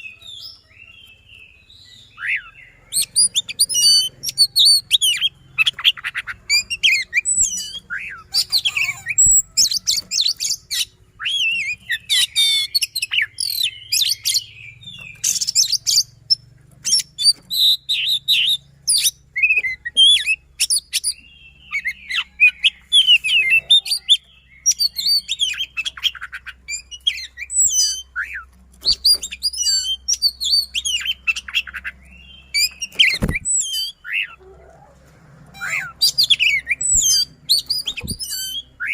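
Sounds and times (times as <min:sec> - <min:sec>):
bird singing: 0:00.0 - 0:38.9.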